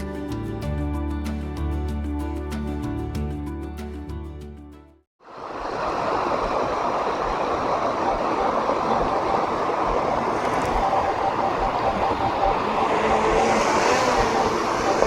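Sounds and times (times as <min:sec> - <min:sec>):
music: 0:00.0 - 0:05.1
waterfall rushing: 0:05.3 - 0:15.0.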